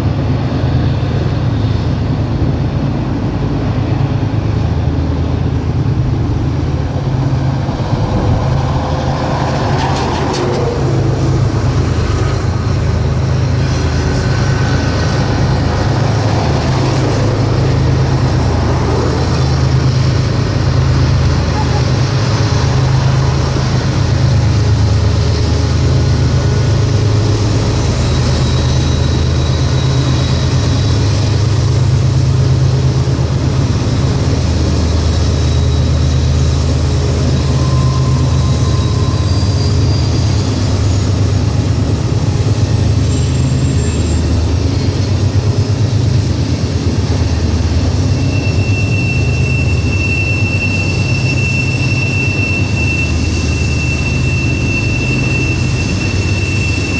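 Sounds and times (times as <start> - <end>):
train rumbling on rails: 0.0 - 56.9
high wheel squeals: 7.0 - 56.9.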